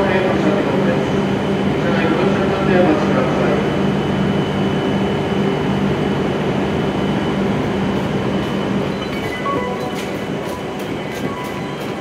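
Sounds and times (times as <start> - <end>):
train equipment humming: 0.0 - 12.0.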